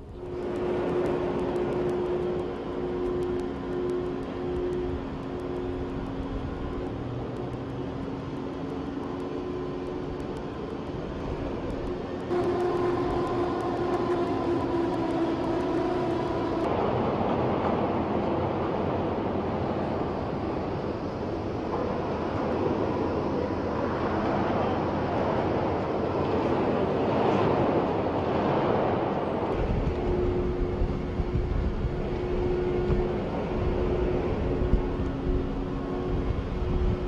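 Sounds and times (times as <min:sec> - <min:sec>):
drilling machinery humming: 0:00.0 - 0:16.8, 0:29.5 - 0:37.0.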